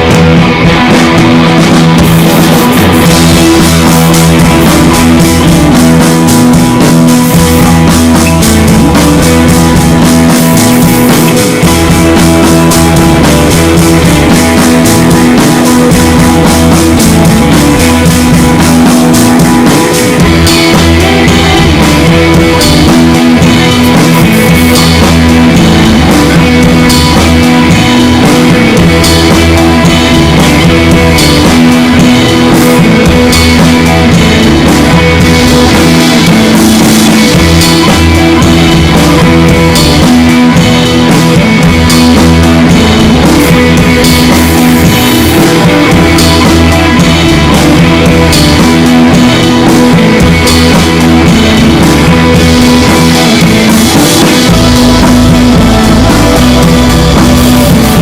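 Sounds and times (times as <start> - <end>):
drums: 0.0 - 58.0
electric guitar: 0.0 - 58.0
rock music: 0.0 - 58.0.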